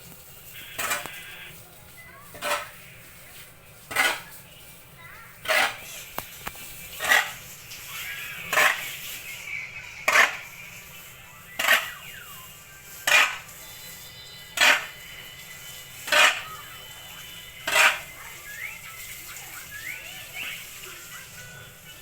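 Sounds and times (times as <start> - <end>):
faint chirps: 7.6 - 22.0.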